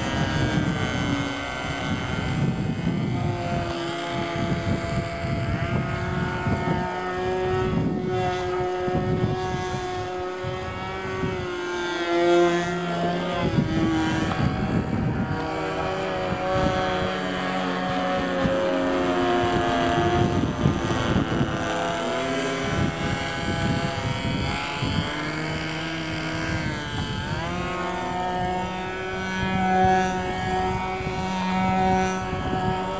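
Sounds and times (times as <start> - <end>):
model airplane engine buzzing: 0.0 - 32.9.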